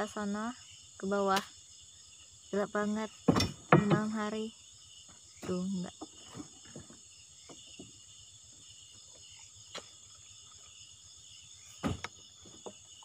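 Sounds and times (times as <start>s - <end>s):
crickets and insects chirping: 0.0s - 13.0s
loud thump: 3.3s - 4.2s, 11.8s - 12.1s
short knocks: 3.3s - 4.2s.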